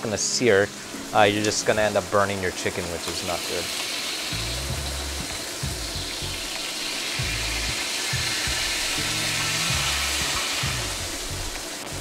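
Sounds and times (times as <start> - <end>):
chicken sizzling in hot oil: 0.0 - 12.0
lofi music beat: 4.3 - 12.0.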